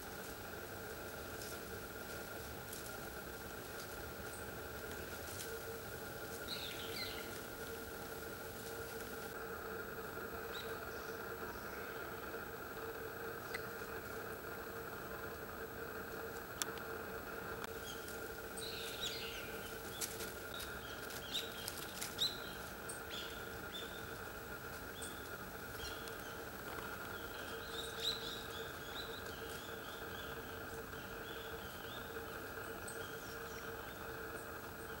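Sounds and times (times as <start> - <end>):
steady background hum: 0.0 - 35.0
small birds calling: 4.2 - 9.2, 13.4 - 14.0, 17.7 - 35.0.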